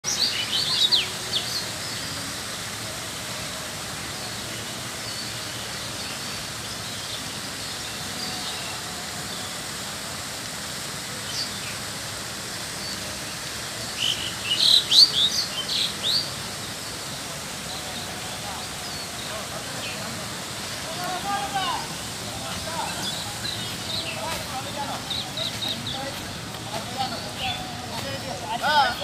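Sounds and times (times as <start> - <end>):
outdoor background noise: 0.0 - 29.0
birds chirping: 12.6 - 29.0.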